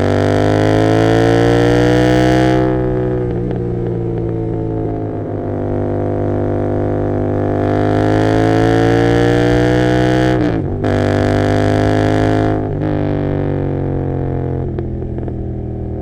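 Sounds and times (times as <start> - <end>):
exhaust crackling: 0.0 - 16.0
motorcycle engine revving: 0.0 - 16.0.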